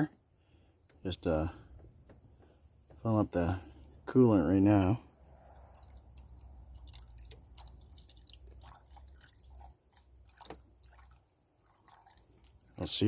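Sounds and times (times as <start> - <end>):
liquid dripping and gurgling: 5.4 - 13.0.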